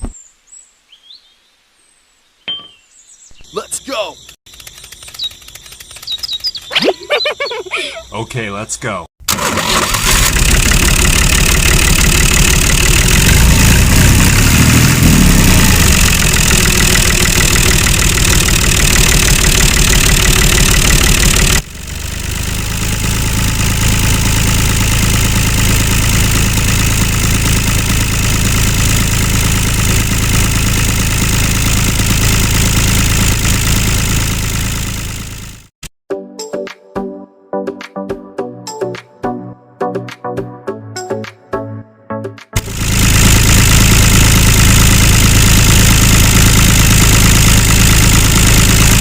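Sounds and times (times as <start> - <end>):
small tractor engine running: 4.5 - 6.8, 9.2 - 35.7, 42.6 - 49.0.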